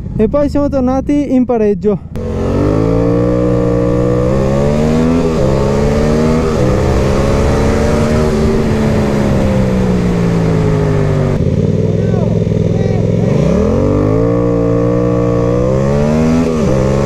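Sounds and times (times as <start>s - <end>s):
wind rush: 2.1s - 11.5s
motorcycle engine accelerating hard: 2.1s - 17.0s.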